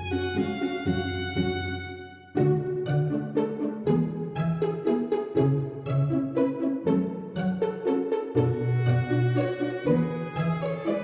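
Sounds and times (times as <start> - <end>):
plucked and bowed strings music: 0.0 - 11.0.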